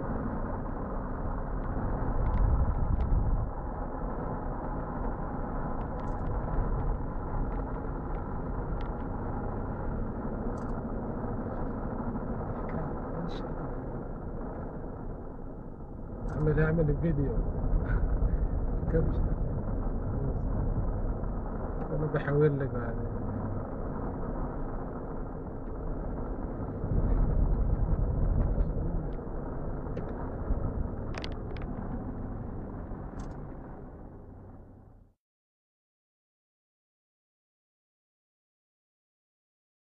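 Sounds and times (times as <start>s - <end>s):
car engine and road noise: 0.0s - 35.2s
vehicle rumble: 0.0s - 35.2s
sharp clicks: 33.1s - 33.6s.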